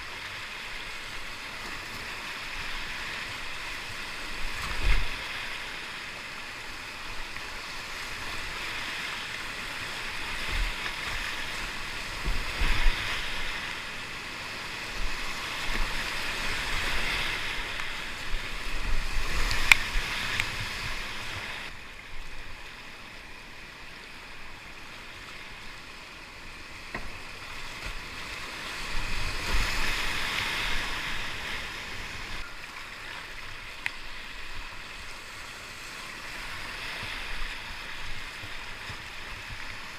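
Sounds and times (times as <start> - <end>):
whitewater rapids rushing: 0.0 - 23.3, 24.0 - 39.9.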